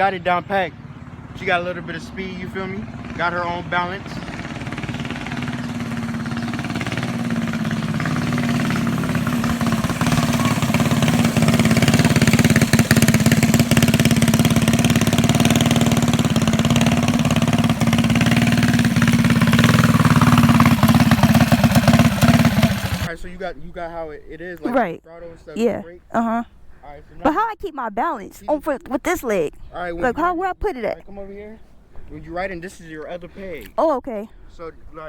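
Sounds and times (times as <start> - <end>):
mini bike engine running: 0.8 - 23.1.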